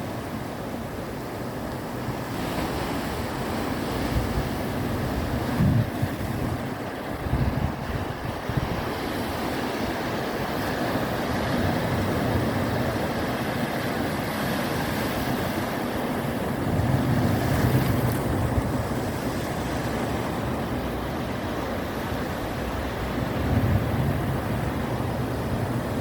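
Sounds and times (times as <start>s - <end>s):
ocean surf washing in: 0.0s - 26.0s
wind buffeting microphone: 3.2s - 26.0s
wave breaking: 5.2s - 25.8s.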